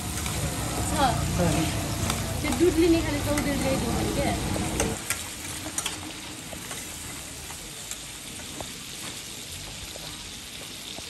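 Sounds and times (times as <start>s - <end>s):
meat sizzling in hot oil: 0.0s - 11.0s
spatula clicking against pan: 2.0s - 3.6s.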